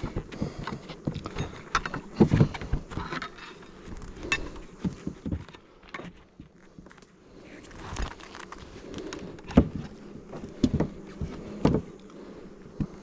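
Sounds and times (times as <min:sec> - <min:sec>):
knocks of hive boxes handled: 0:00.0 - 0:03.3, 0:08.0 - 0:13.0
honeybees buzzing: 0:00.0 - 0:13.0.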